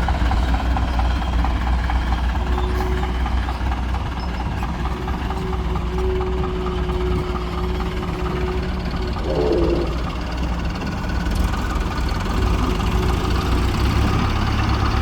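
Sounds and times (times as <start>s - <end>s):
heavy diesel engine running: 0.0s - 15.0s
thin steady whine: 9.1s - 10.3s.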